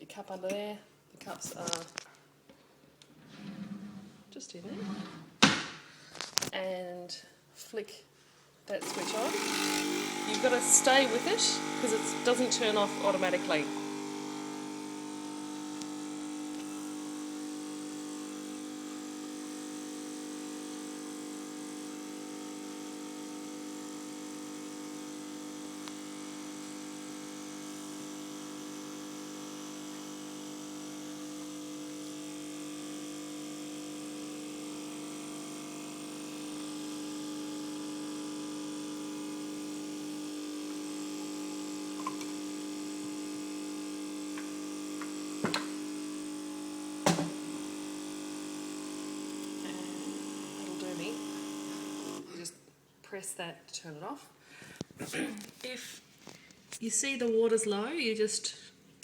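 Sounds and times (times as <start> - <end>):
coffee machine pump humming: 8.8 - 52.4.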